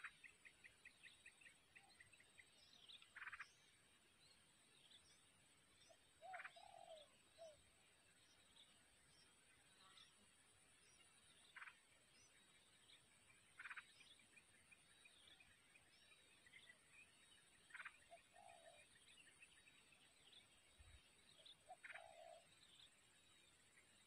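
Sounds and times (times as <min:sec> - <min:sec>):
faint rattly bird calls: 0:00.0 - 0:24.0.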